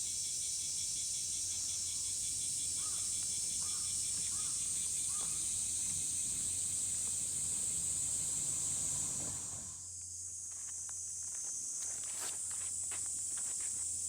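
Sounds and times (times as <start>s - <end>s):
insects chorus: 0.0s - 14.0s
short bird calls: 2.8s - 5.4s.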